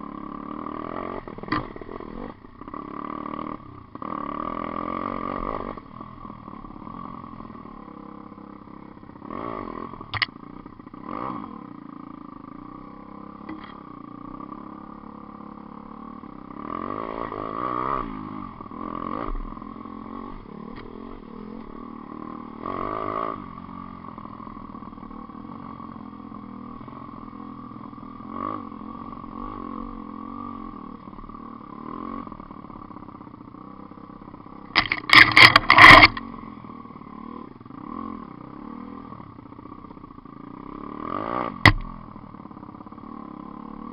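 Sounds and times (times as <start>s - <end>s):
pit bike engine running: 0.0s - 43.9s
loud choppy engine revving: 34.7s - 36.3s.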